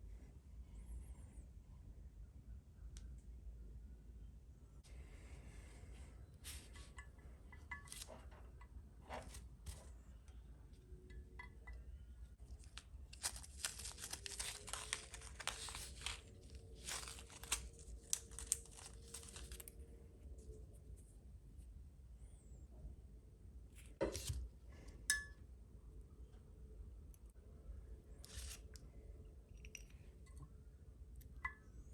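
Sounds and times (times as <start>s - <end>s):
plastic packaging crinkling and tearing: 12.4s - 19.8s.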